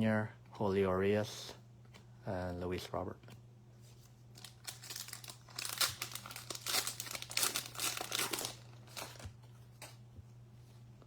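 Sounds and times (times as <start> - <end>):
foil wrapper crinkling and tearing: 4.3 - 9.9.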